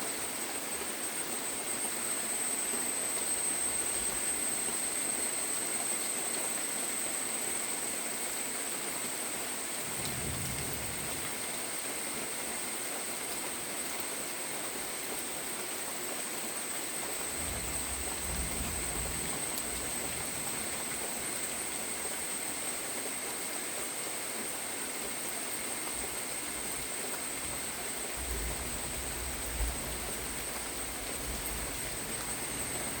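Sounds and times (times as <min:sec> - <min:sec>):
steady rain falling: 0:00.0 - 0:33.0
brief low rumbles: 0:09.8 - 0:11.7.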